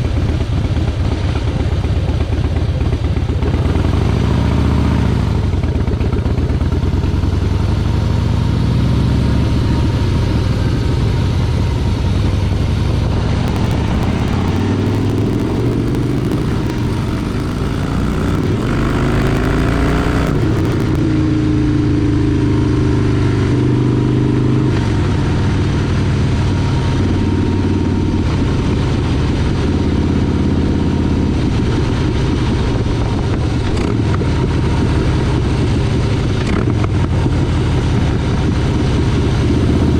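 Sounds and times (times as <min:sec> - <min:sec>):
motorcycle engine revving: 0:13.4 - 0:21.2.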